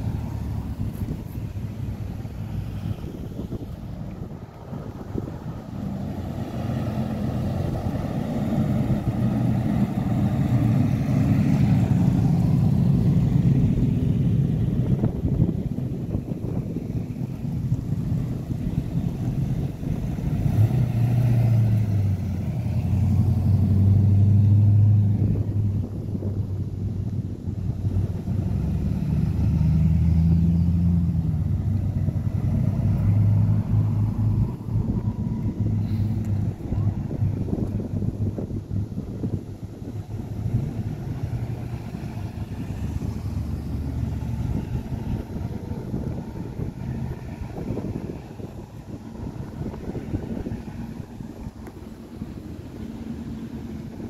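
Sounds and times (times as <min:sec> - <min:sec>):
cars driving slowly past: 0:00.0 - 0:54.0.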